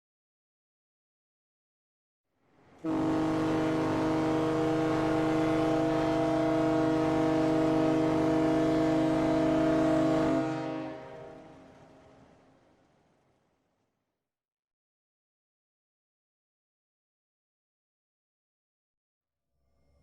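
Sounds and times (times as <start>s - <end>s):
ship's horn blast: 2.6s - 12.5s.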